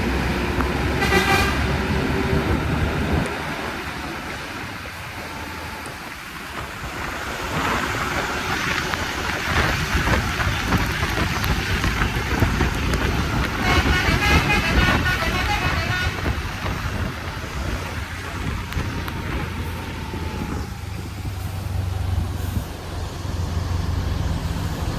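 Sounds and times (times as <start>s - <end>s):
bus rumbling on wet road: 0.0s - 24.9s
rain: 0.0s - 24.9s
vehicle horn short notes: 1.0s - 1.6s.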